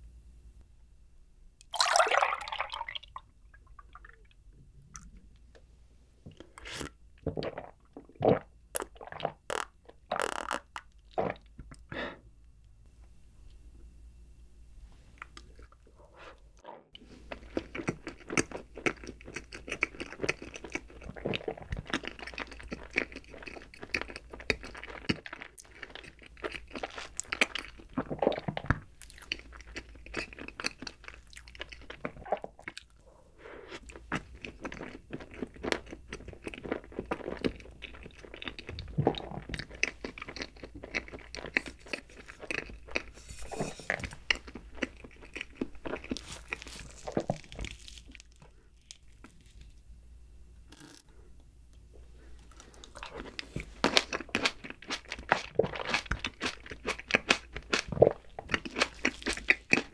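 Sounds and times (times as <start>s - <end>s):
chewing soft cake: 17.0s - 49.8s, 52.0s - 59.9s.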